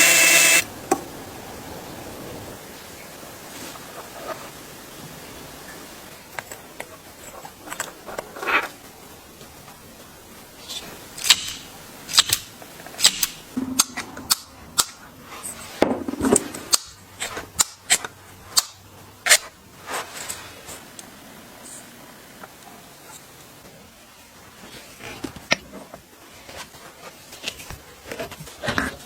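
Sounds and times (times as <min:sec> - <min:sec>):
tool parts clicking and knocking: 0:11.2 - 0:15.0.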